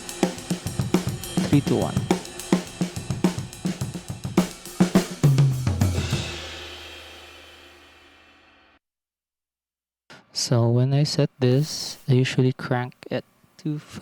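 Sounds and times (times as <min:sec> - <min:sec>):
crash cymbal ringing: 0:00.0 - 0:05.2
drum kit beat: 0:00.0 - 0:08.5.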